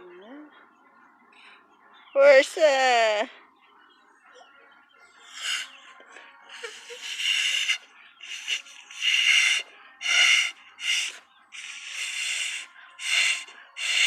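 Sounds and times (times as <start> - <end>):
person blowing into slime: 7.0 - 14.0.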